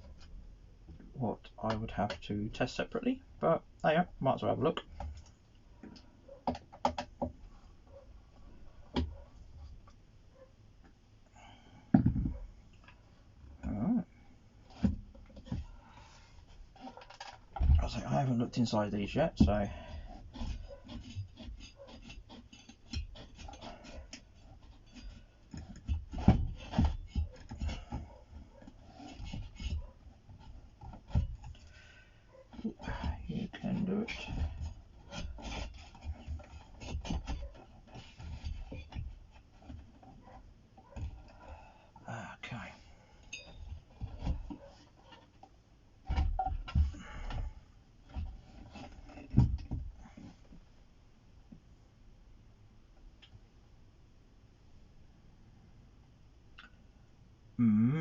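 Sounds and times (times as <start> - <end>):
handling clicks and scrapes: 14.6 - 50.7.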